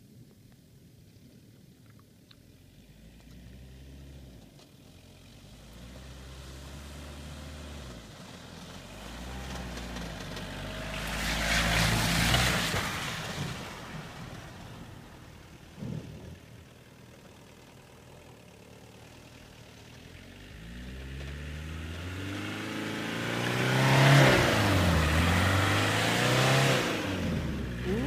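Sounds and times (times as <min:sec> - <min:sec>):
diesel car engine revving: 0:02.6 - 0:28.0.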